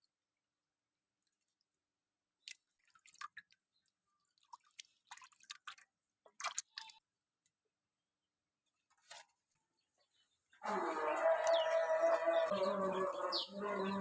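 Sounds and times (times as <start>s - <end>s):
wet clicks and squelches: 2.4s - 3.6s, 4.6s - 7.6s.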